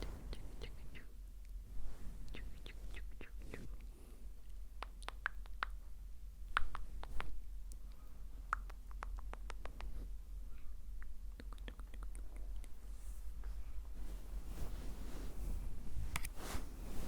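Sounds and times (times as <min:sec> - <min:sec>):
wet mouth and tongue clicks: 0:04.8 - 0:05.8, 0:06.5 - 0:09.9, 0:11.0 - 0:12.8.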